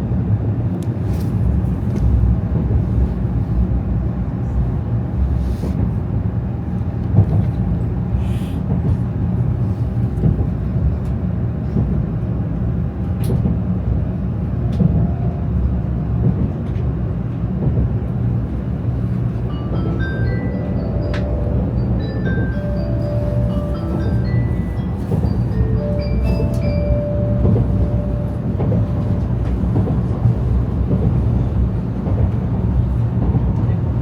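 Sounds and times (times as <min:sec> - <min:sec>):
train running rumble: 0:00.0 - 0:34.0
chime melody: 0:19.5 - 0:29.4.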